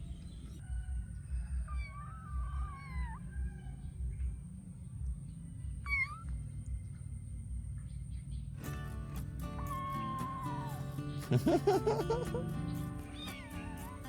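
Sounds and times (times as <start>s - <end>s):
steady low rumble: 1.5s - 10.1s
kitten meowing: 1.7s - 3.8s, 5.8s - 6.4s, 9.6s - 11.2s, 13.0s - 14.0s.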